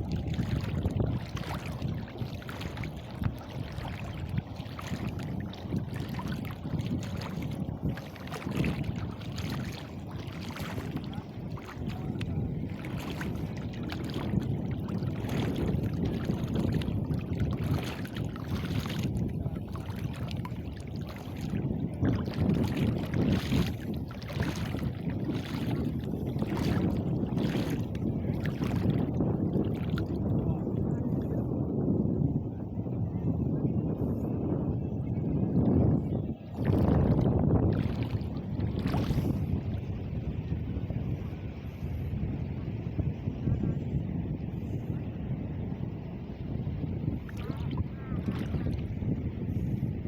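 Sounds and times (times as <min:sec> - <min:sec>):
water sloshing and splashing: 0:00.0 - 0:31.4, 0:36.5 - 0:39.9, 0:47.1 - 0:49.7
wind rumbling on microphone: 0:00.0 - 0:50.0.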